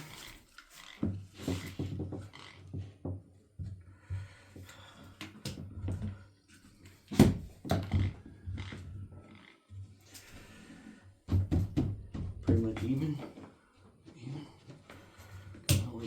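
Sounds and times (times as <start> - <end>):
wooden boards knocking and rattling: 0.9 - 4.3, 7.1 - 9.0, 11.3 - 13.5.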